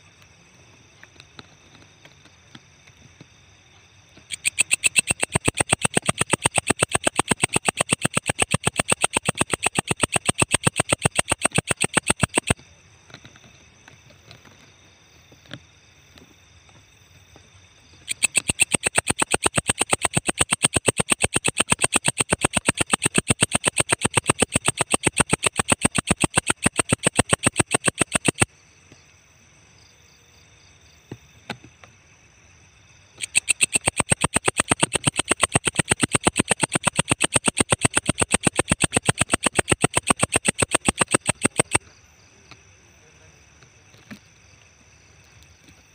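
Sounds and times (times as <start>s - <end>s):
insect calling in sharp clicks: 4.1s - 14.7s, 17.8s - 29.0s, 33.1s - 41.8s.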